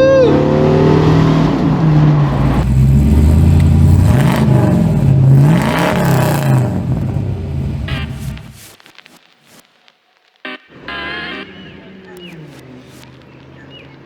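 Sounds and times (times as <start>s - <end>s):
car engine accelerating: 0.0s - 8.9s, 11.6s - 14.0s.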